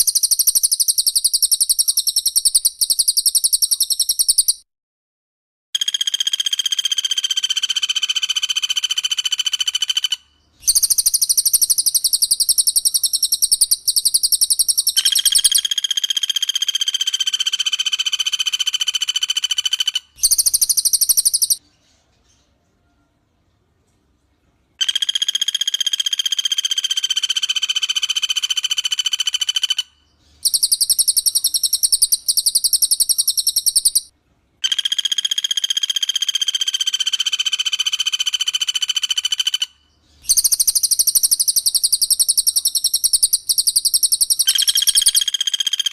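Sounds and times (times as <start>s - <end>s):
piercing whistled bird notes: 0.0s - 4.6s, 10.6s - 16.2s, 19.5s - 21.6s, 29.5s - 34.1s, 40.2s - 45.9s
rapid rattling bird trills: 0.0s - 4.6s, 5.8s - 21.6s, 24.8s - 45.9s.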